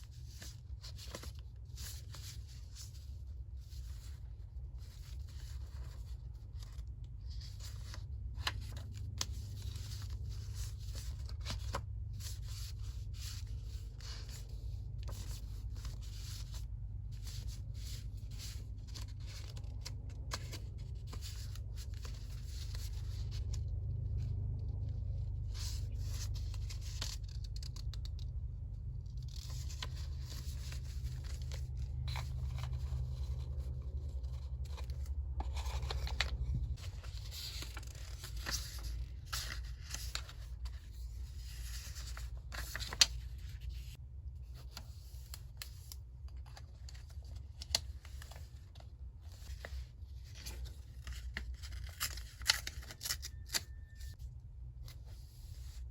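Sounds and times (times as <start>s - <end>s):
steady low hum: 0.0s - 52.1s
paper rustling: 0.0s - 54.1s
paper scraping: 29.1s - 44.0s.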